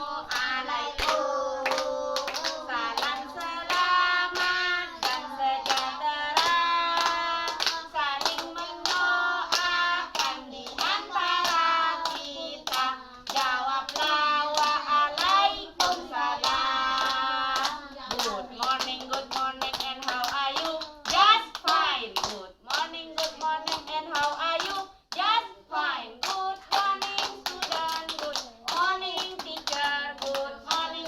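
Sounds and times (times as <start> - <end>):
children singing: 0.0 - 18.8
hands clapping: 0.3 - 25.3, 26.2 - 31.0.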